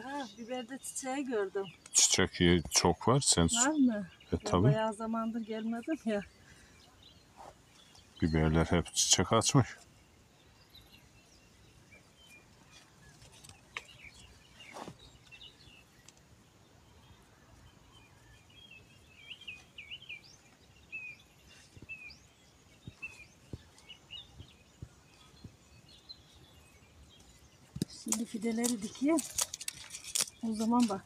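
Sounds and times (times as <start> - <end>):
faint outdoor background: 0.0 - 31.0
small birds chirping: 0.0 - 31.0.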